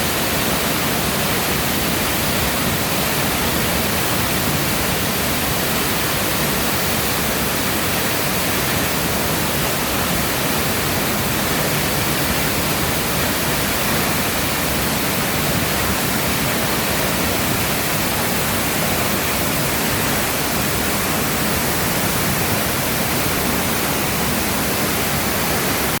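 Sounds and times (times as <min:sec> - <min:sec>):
waterfall rushing and splashing: 0:00.0 - 0:26.0.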